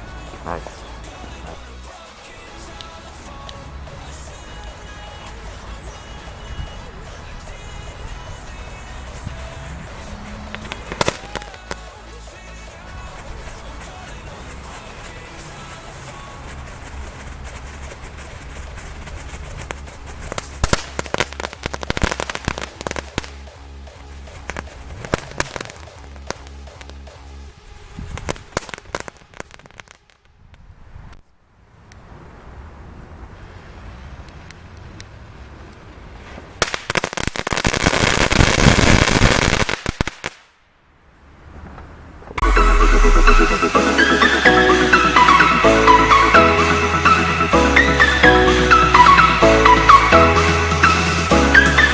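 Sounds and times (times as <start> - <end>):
electronic dance music: 0.0 - 6.8, 42.4 - 51.9
fireworks crackling and popping: 7.1 - 30.4, 36.2 - 40.6
music with bass beat: 20.6 - 27.5, 42.4 - 51.9.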